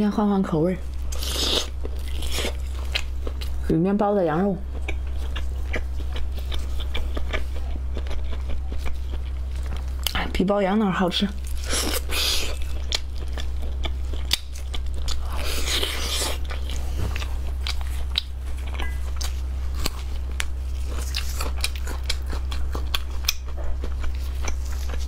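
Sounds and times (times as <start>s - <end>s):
low steady hum: 0.0s - 25.0s
chewing and lip-smacking: 0.9s - 3.7s, 4.6s - 10.3s, 11.3s - 25.0s.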